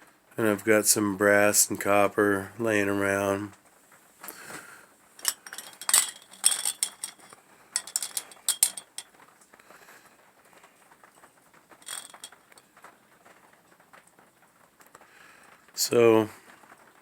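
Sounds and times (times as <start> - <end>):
glass bottles clinking and rattling: 5.2 - 9.1, 11.8 - 12.7.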